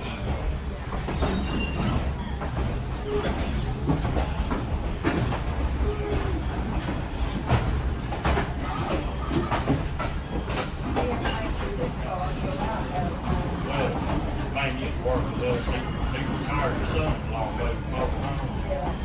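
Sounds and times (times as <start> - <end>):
wheel squeals: 0.0 - 9.9, 15.4 - 17.2
train rumbling: 0.0 - 19.0.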